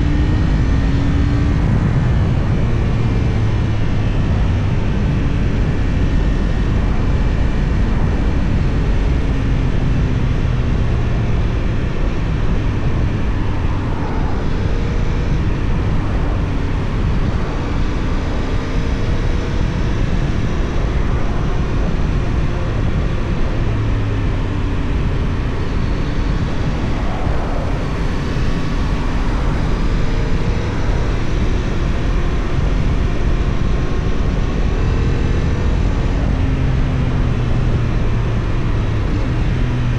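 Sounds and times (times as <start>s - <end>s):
steady rushing noise: 0.0s - 39.9s.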